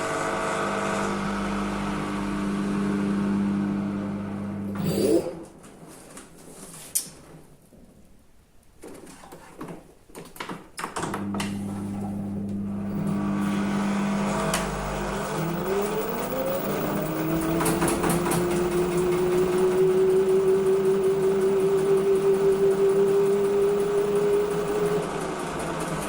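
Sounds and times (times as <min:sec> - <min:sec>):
washing machine motor hum: 0:00.0 - 0:05.6, 0:11.0 - 0:26.0
drum spinning whine: 0:12.7 - 0:25.6
washing machine clicks: 0:15.7 - 0:26.0.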